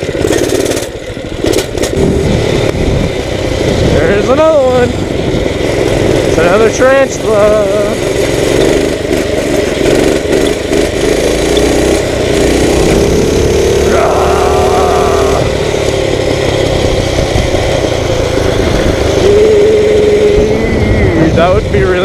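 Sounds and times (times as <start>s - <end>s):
dirt bike engine running: 0.0s - 22.0s
wind on microphone: 1.8s - 4.2s, 18.3s - 22.0s.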